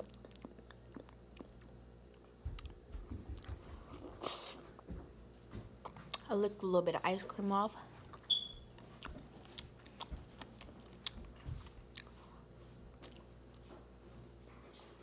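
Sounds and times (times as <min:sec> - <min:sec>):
mouth sounds of chewing: 0:00.0 - 0:02.8, 0:03.4 - 0:04.9, 0:07.8 - 0:13.7
short high squeak: 0:08.3 - 0:08.7.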